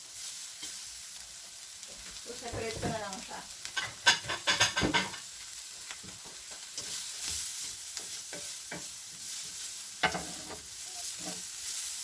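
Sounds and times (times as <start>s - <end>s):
vegetables sizzling in pan: 0.0s - 12.0s
utensil tapping and scraping pan: 3.7s - 5.3s, 6.0s - 11.5s.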